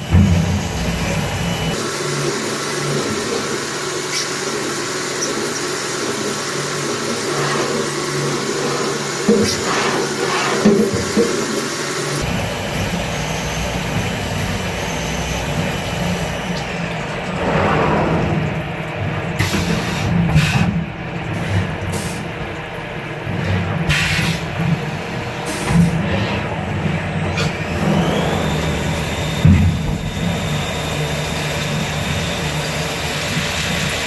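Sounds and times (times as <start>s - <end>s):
milling machine cutting: 0.0s - 1.8s, 12.0s - 20.3s, 24.0s - 34.0s.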